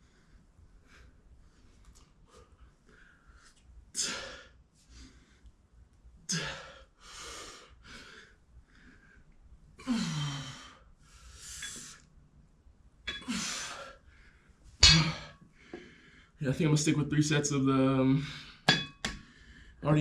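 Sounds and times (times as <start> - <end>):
man sighing: 6.3 - 6.8
man breathing hard: 6.3 - 12.1, 15.3 - 16.4, 18.2 - 19.8.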